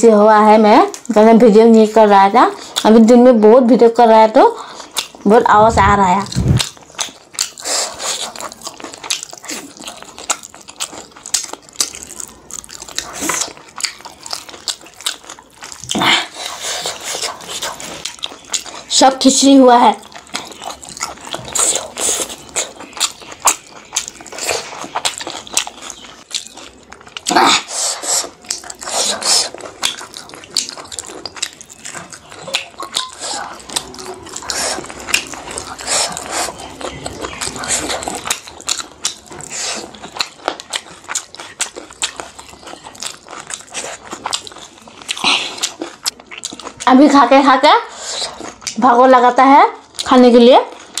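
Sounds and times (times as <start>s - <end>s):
sucking on meat: 4.6s - 10.4s, 27.2s - 30.7s, 32.0s - 40.2s, 47.8s - 48.7s
wet chewing mouth smacks: 4.6s - 18.9s, 20.0s - 46.8s.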